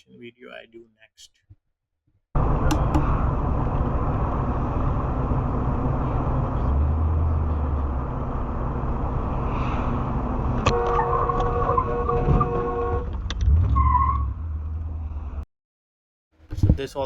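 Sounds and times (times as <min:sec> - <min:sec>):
steady tone: 0:02.4 - 0:06.7
car road and engine noise: 0:02.4 - 0:15.4.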